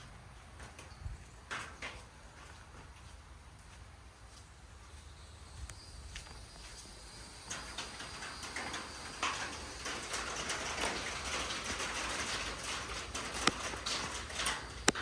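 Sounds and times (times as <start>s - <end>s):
rain falling: 6.8s - 15.0s.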